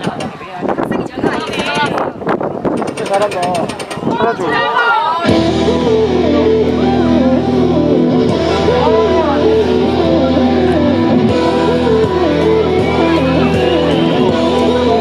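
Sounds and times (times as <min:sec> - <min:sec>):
pop music with guitar: 0:05.2 - 0:15.0.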